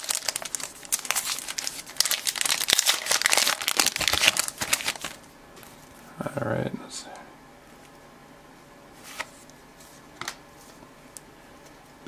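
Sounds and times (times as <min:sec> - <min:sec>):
wrapper crinkling: 0:00.0 - 0:05.3.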